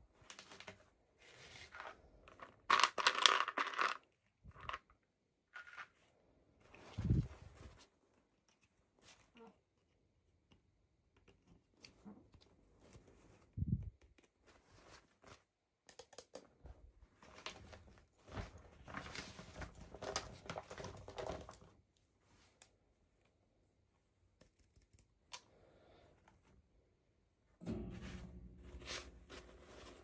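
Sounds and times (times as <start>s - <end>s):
packaging rustling and crinkling: 17.2s - 21.7s.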